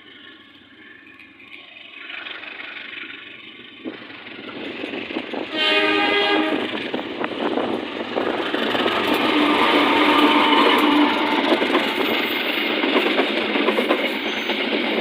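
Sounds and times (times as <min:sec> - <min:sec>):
train rumble and rail noise: 0:00.0 - 0:15.0
train horn blast: 0:05.5 - 0:06.8, 0:09.1 - 0:12.1.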